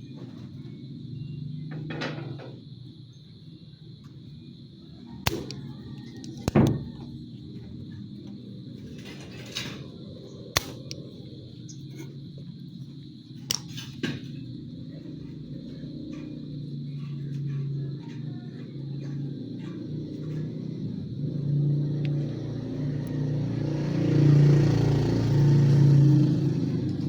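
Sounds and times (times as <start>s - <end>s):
clicks and knocks of tools: 13.4s - 14.4s.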